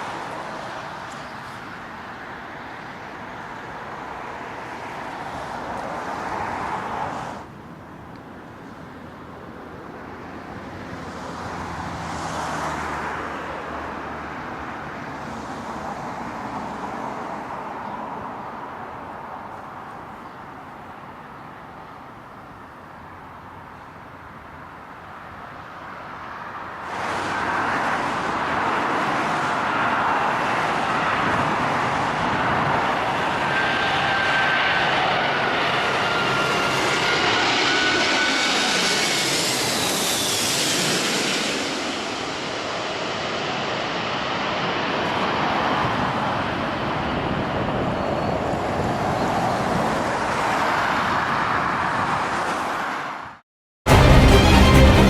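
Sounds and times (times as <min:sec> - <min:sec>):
jet engines roaring: 0:00.0 - 0:07.6, 0:24.7 - 0:53.0, 0:53.9 - 0:55.0
music: 0:53.9 - 0:55.0.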